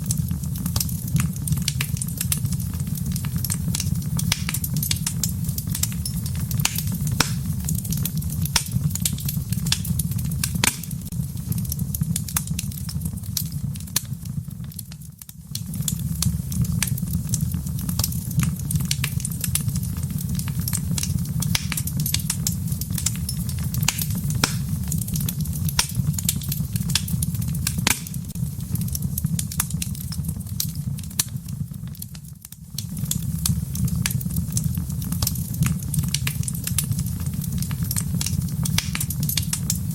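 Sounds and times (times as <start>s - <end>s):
fire crackling and popping: 0.0s - 39.9s
fire rumbling: 0.0s - 39.9s.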